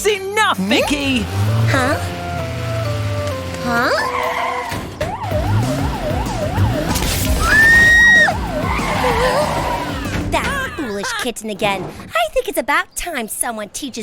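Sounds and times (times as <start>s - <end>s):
background music: 0.0s - 10.9s
cartoon siren warbling: 3.6s - 10.2s.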